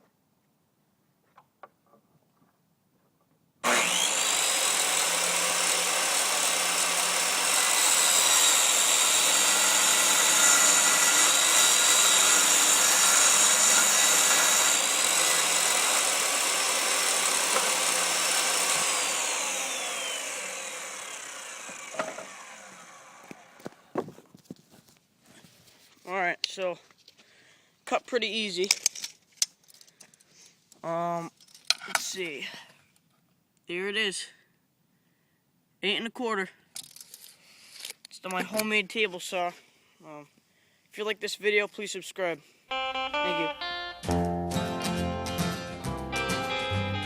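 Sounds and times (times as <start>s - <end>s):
circular saw whining: 3.6s - 23.8s.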